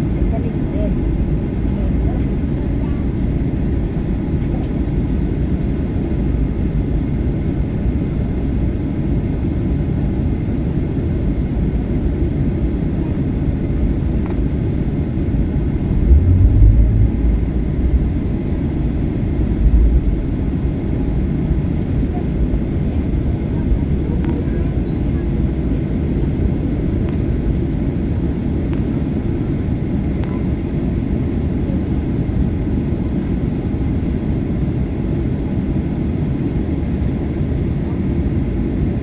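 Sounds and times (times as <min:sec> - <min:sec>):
airliner cabin rumble: 0:00.0 - 0:39.0
heavy low thumps: 0:15.4 - 0:20.6.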